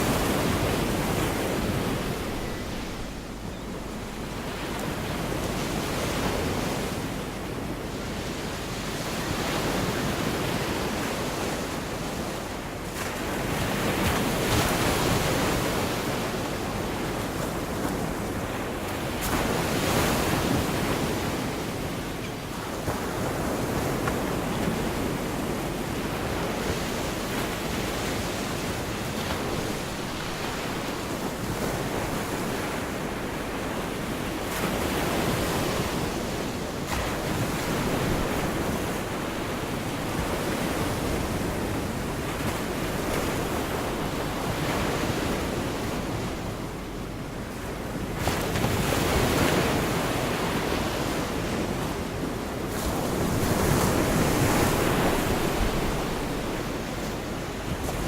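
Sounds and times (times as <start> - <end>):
surf breaking on beach: 48.1 - 58.0.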